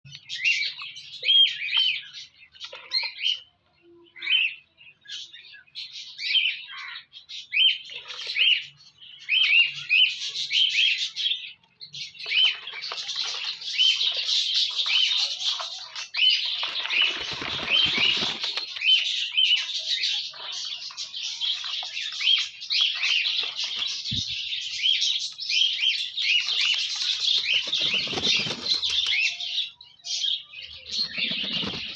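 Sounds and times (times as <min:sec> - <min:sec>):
birds splashing in water: 0:12.2 - 0:19.2
wings fluttering: 0:12.2 - 0:20.0, 0:20.6 - 0:24.5, 0:25.9 - 0:29.4, 0:30.8 - 0:31.9.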